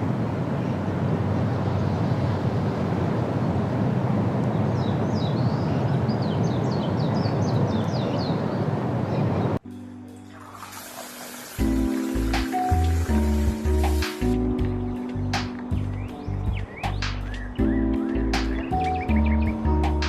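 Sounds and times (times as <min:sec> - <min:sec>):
low outdoor rumble: 0:00.0 - 0:06.9
bird chirping: 0:04.5 - 0:09.6, 0:14.6 - 0:19.9.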